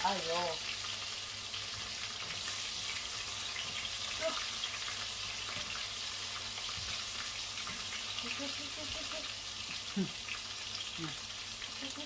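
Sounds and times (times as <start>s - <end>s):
garlic and onion sizzling: 0.0s - 12.0s.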